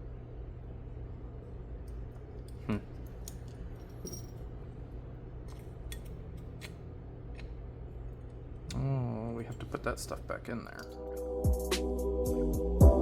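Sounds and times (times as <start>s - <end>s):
steady low hum: 0.0s - 13.0s
small parts clicking and clinking: 2.4s - 4.4s.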